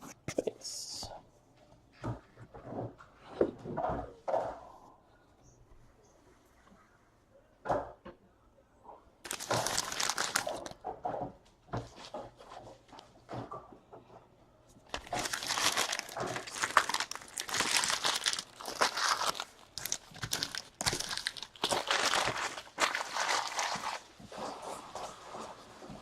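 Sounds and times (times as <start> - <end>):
wrappers crinkling and tearing: 9.2 - 10.8, 14.9 - 24.2
cards being handled: 9.3 - 10.7, 14.9 - 24.0.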